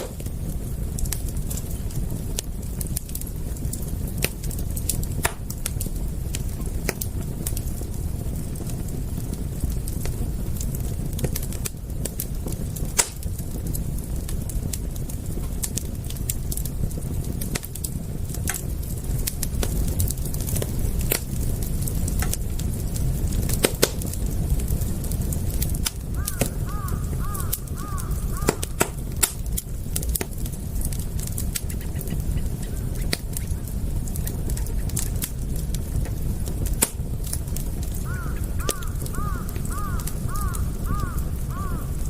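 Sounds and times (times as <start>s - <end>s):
wood fire crackling: 0.0s - 42.0s
bird calling: 26.2s - 28.8s, 38.1s - 41.9s.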